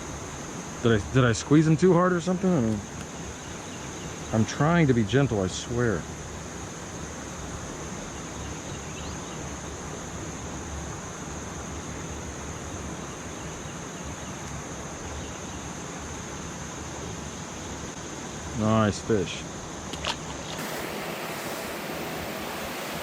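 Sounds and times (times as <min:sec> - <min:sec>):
high-pitched insect drone: 0:03.2 - 0:23.0
river water flowing: 0:19.6 - 0:23.0.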